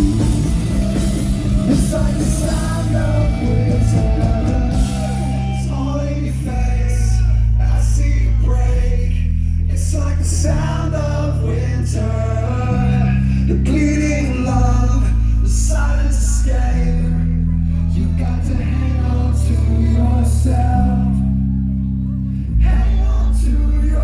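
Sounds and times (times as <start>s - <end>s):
electric guitar: 0.0s - 7.0s
bass line: 0.0s - 24.0s
man singing: 0.0s - 24.0s.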